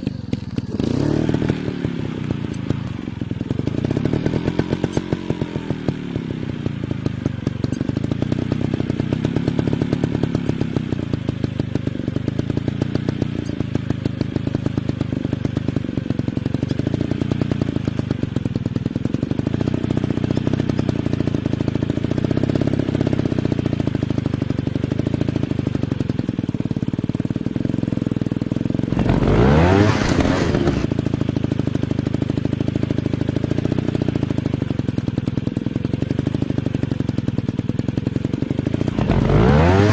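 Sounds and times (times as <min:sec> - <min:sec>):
dirt bike engine revving: 0:00.4 - 0:06.7, 0:28.8 - 0:31.0, 0:38.7 - 0:39.9.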